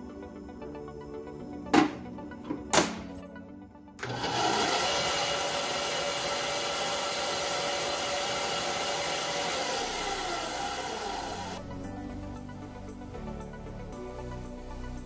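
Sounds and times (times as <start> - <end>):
band saw cutting wood: 4.0 - 11.6.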